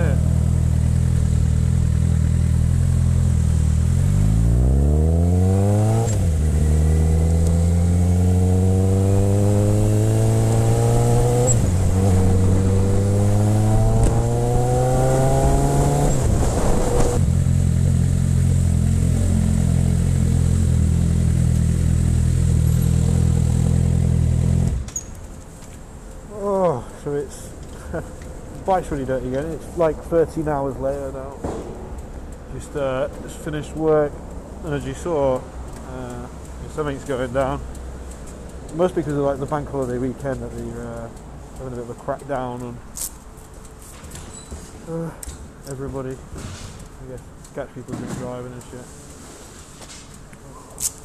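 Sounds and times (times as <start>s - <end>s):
motorcycle engine revving and idling: 0.0s - 24.9s.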